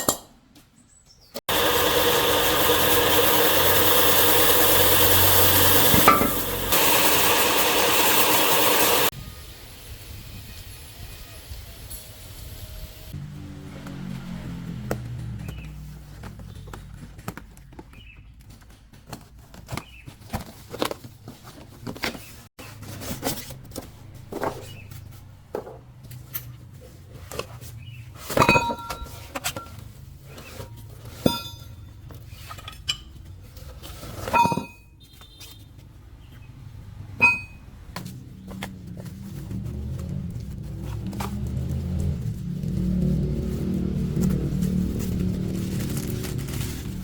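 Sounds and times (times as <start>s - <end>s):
metal tools clinking: 28.2s - 29.8s, 30.6s - 33.3s, 34.2s - 34.9s, 37.2s - 37.6s
ringing metal strikes: 37.2s - 37.6s.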